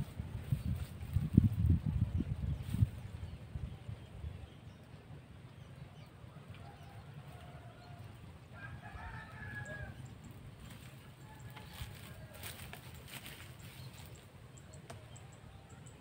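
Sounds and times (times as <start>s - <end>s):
steady low rumble: 0.0s - 6.3s
rooster crowing: 6.6s - 10.0s.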